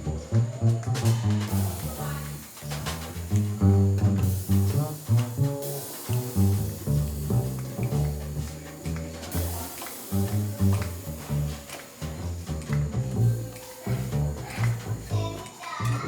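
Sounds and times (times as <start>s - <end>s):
plucked double bass: 0.0s - 15.4s
jazz trio playing: 0.0s - 16.0s.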